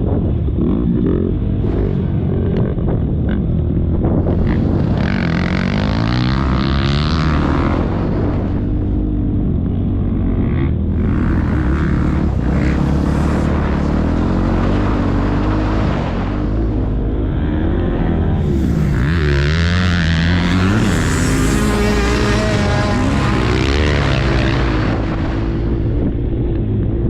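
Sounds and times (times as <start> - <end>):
motocross bike engine revving: 0.5 - 26.2
rushing noise: 4.0 - 9.2, 10.8 - 26.3.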